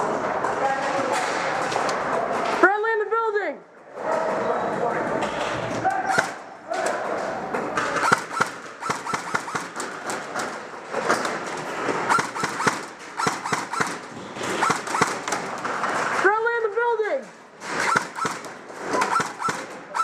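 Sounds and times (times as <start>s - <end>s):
airsoft guns firing: 6.0s - 16.2s, 17.6s - 20.0s.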